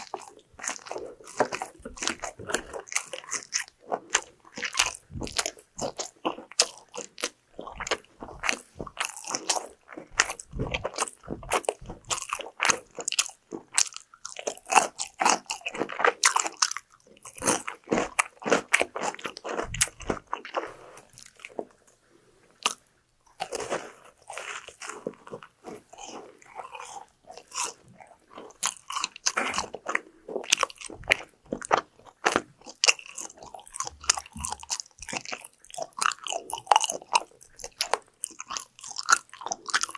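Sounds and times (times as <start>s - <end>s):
crunchy eating and chewing: 0.0s - 39.9s.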